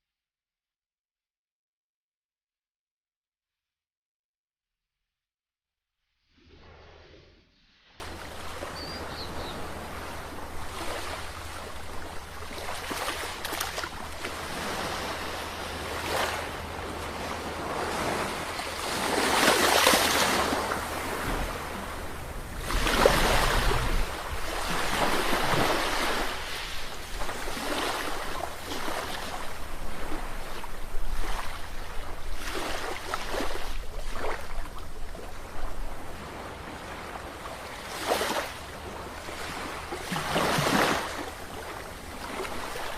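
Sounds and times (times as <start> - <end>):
sea waves breaking on shore: 8.0 - 42.9.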